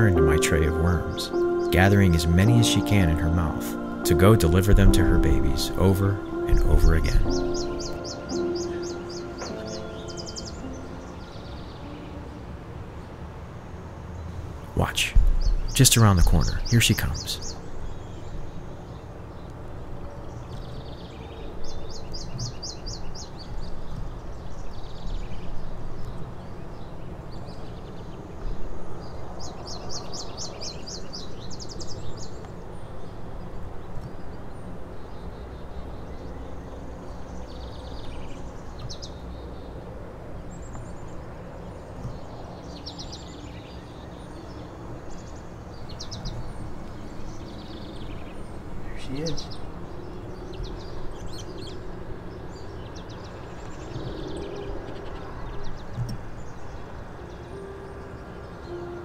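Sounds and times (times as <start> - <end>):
birds chattering: 0.0 - 12.4, 14.6 - 18.9, 40.4 - 59.0.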